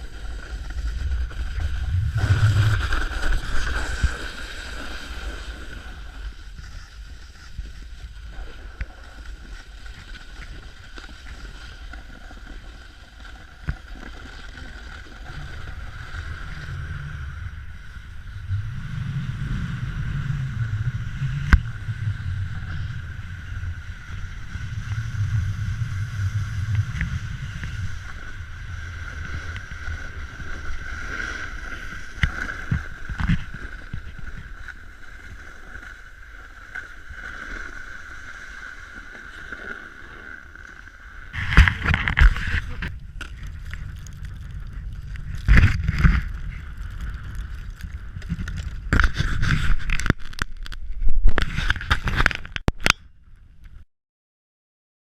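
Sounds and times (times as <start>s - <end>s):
wind buffeting microphone: 0.0s - 6.7s
low rumble: 0.0s - 9.9s, 15.1s - 30.7s, 41.3s - 51.5s
snowboard scraping over snow: 0.0s - 50.0s.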